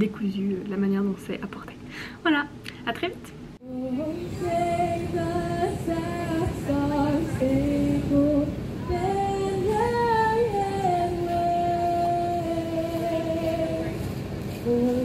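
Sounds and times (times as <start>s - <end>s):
woman singing slow melody: 3.6s - 15.0s.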